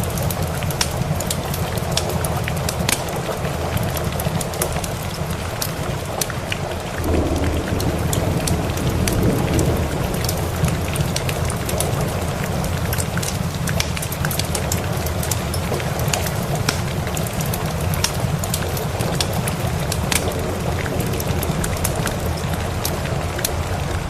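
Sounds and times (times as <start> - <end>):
steady rain: 0.0 - 24.0
wood fire crackling: 0.0 - 24.0
distant thunder rumble: 5.4 - 24.0.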